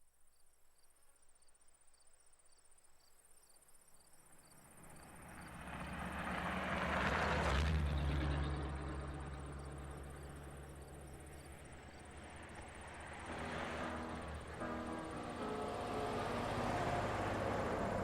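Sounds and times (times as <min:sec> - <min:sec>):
crickets chirping: 0:00.0 - 0:07.0, 0:08.2 - 0:18.0
vehicle passing: 0:04.8 - 0:18.0.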